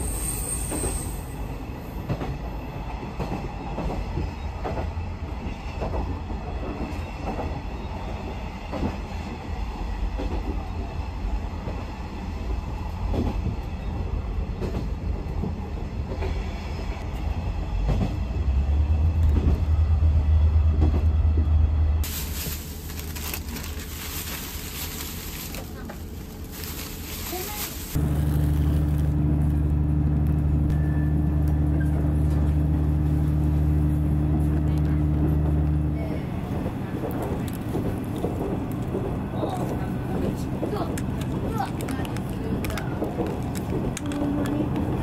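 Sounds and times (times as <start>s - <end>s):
railcar engine and wheels rumbling: 0.0s - 45.0s
track clacks: 33.8s - 45.0s.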